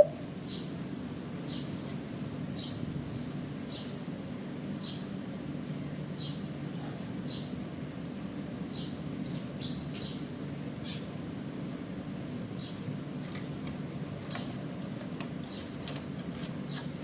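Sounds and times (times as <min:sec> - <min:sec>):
small bird chirping: 0:00.0 - 0:00.7, 0:08.7 - 0:10.2.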